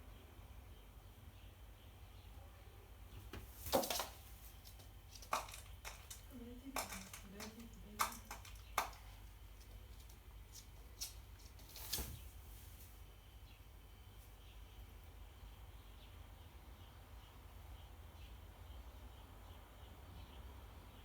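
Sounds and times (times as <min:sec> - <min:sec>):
faint low voice: 0:02.3 - 0:03.1
bird pecking at cat food: 0:03.3 - 0:11.9.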